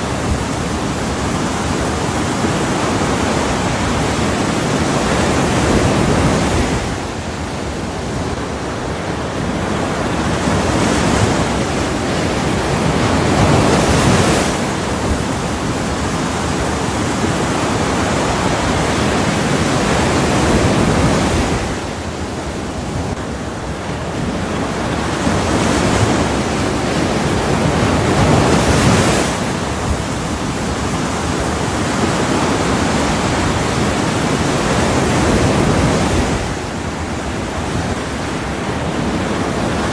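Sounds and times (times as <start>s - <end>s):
waves breaking: 0.0s - 39.9s.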